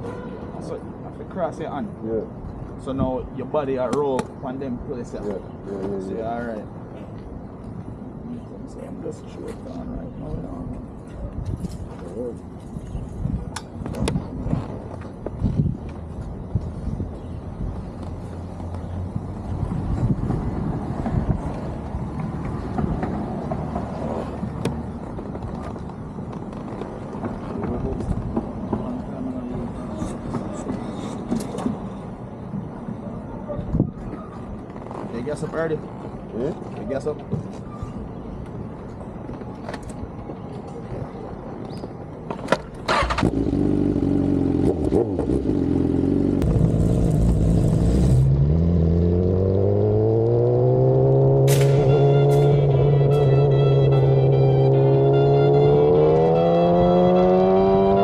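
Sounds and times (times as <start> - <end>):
motorcycle wind and road noise: 11.2 - 23.7, 42.9 - 58.0.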